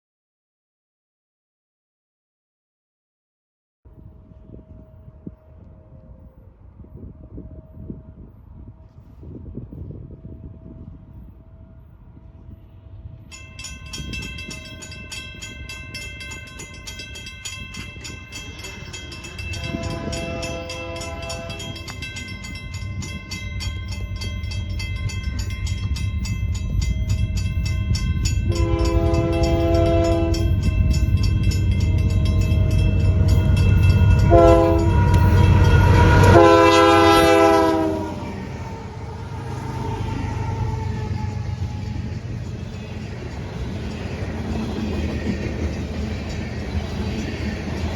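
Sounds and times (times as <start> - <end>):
train rumble: 3.9 - 47.9
locomotive horn: 19.4 - 22.0, 28.5 - 30.7, 31.9 - 42.3.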